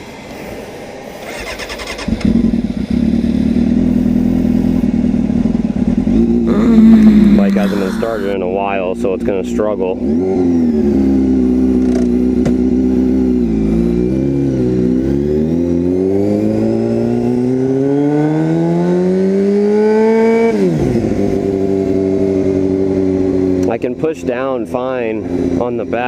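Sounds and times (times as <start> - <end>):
motorcycle engine running: 2.0 - 16.0.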